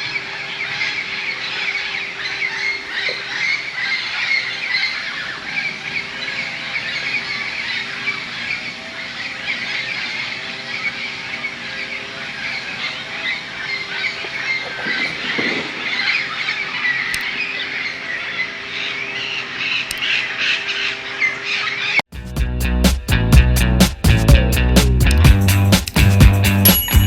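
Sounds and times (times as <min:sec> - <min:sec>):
flock of parrots squawking: 0:00.0 - 0:22.0.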